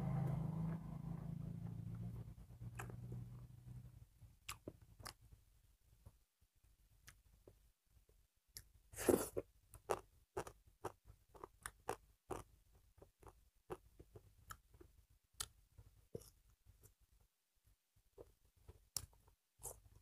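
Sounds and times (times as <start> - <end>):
wet chewing and mouth sounds: 2.7 - 3.2, 4.4 - 5.3, 8.6 - 15.6.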